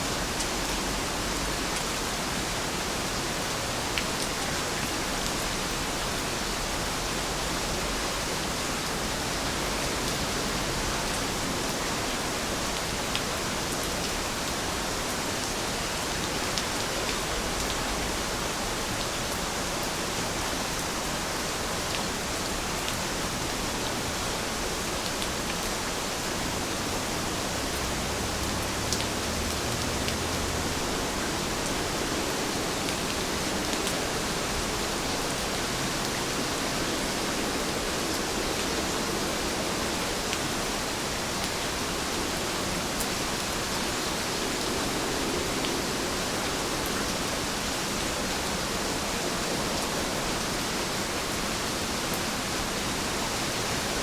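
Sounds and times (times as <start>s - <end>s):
heavy rain falling: 0.0s - 54.0s
faint raindrop ticks: 28.4s - 30.4s.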